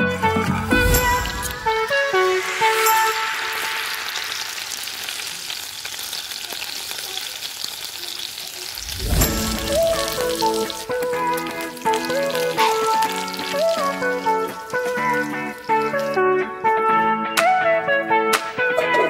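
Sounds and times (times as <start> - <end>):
background music: 0.0 - 4.8, 8.8 - 19.0
chicken sizzling in hot oil: 0.4 - 16.6.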